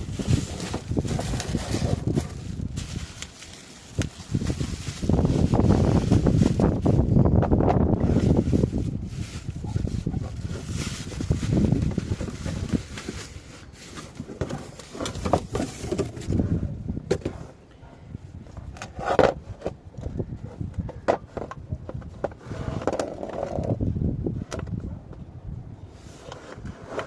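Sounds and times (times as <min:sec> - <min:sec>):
rustling: 0:00.0 - 0:07.1, 0:07.9 - 0:16.5.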